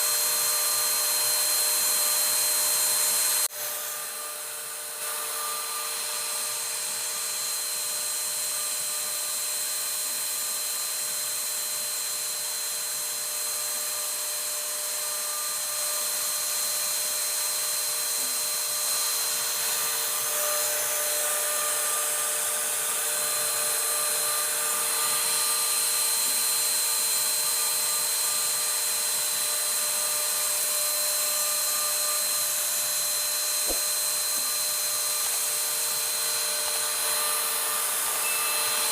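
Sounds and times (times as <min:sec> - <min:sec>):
router spindle whining: 0:00.0 - 0:38.9.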